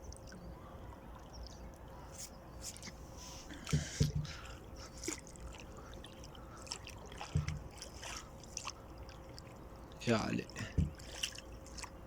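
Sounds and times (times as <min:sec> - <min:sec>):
water trickling and splashing: 0:00.0 - 0:12.0
dull knocks against boat: 0:03.6 - 0:04.4, 0:07.2 - 0:07.8, 0:10.6 - 0:11.1.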